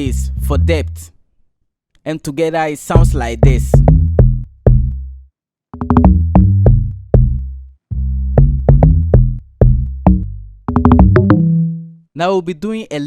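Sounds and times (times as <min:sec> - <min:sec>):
sub bass: 0:00.0 - 0:01.1, 0:03.0 - 0:12.1
log drum pattern: 0:02.9 - 0:05.0, 0:05.8 - 0:07.5, 0:08.3 - 0:12.0.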